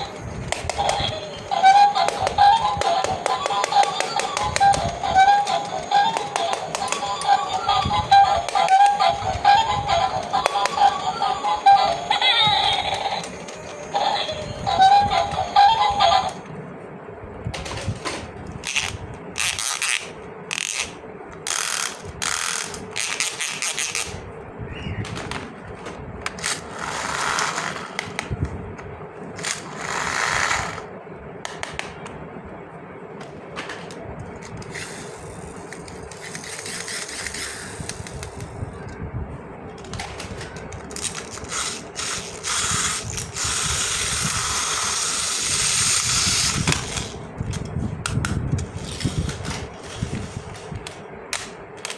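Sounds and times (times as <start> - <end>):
plastic pieces clicking: 0.0 - 15.2, 17.6 - 24.2, 33.7 - 38.5, 39.8 - 50.0.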